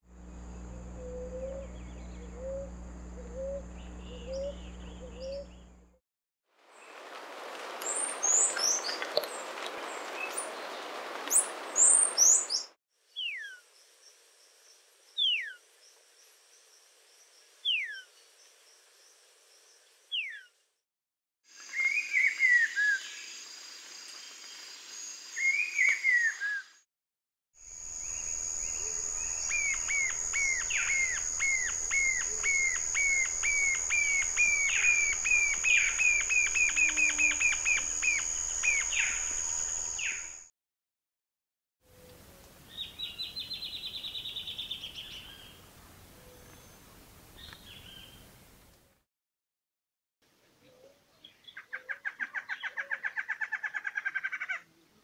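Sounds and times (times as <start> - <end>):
steady high hum: 0.1 - 5.9, 27.7 - 40.3
bird high piping song: 0.6 - 5.8, 11.3 - 13.6, 15.2 - 15.6, 17.6 - 18.1, 20.1 - 20.5, 27.9 - 40.5, 42.7 - 45.6
rough falling bird calls: 6.8 - 13.6, 28.8 - 40.4
bird whistling descending notes: 28.1 - 40.4.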